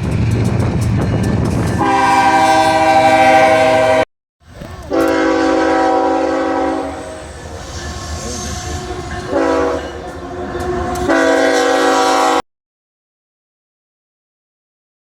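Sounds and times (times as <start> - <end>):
passing train rumble: 0.0 - 12.4
train air horn blasts: 1.8 - 4.0, 4.9 - 12.4.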